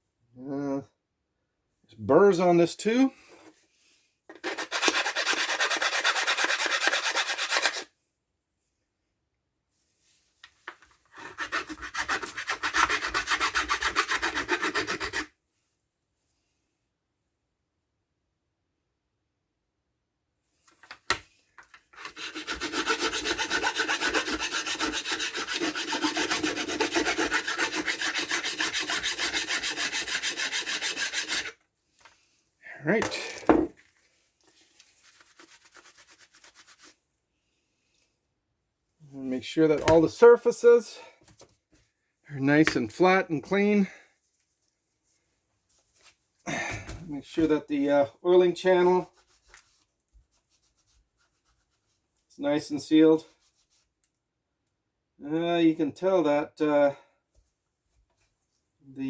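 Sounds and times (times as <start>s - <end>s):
hand file rasping on steel: 4.3s - 7.9s, 11.1s - 15.3s, 22.0s - 31.6s.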